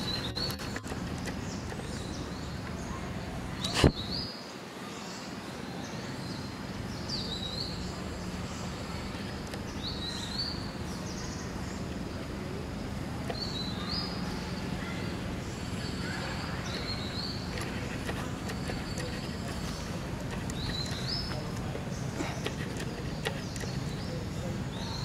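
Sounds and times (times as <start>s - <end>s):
bird calling: 0.0s - 2.9s, 13.3s - 25.0s
outdoor background noise: 0.0s - 25.0s.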